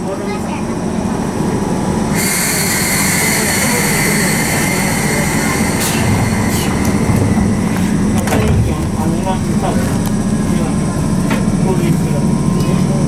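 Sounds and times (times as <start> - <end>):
train low hum: 0.0 - 13.0
loud hiss with high whistle: 2.2 - 7.7.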